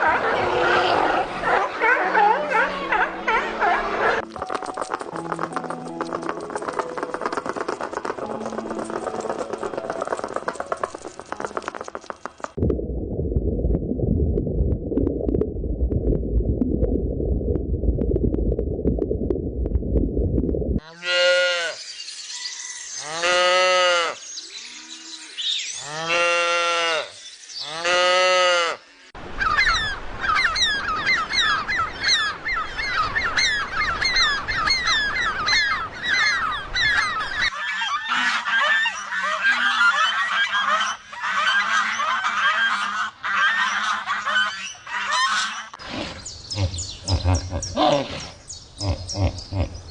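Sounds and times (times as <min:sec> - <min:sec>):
low rumbling: 0:12.6 - 0:20.8.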